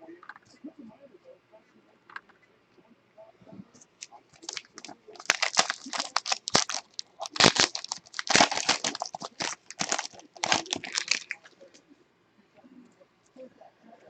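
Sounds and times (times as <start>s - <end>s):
wrapper crinkling and tearing: 4.0s - 11.7s.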